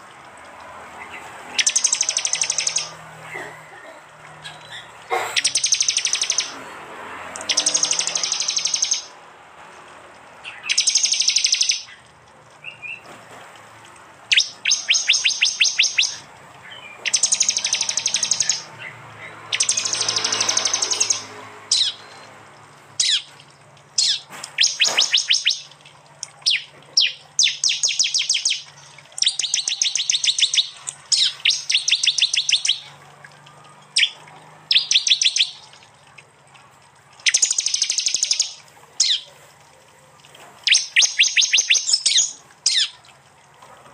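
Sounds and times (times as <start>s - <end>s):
bird rattling trills: 1.6s - 2.9s, 4.5s - 6.5s, 7.4s - 9.1s, 10.6s - 11.9s, 14.3s - 16.2s, 17.0s - 18.7s, 19.5s - 22.0s, 37.2s - 39.3s.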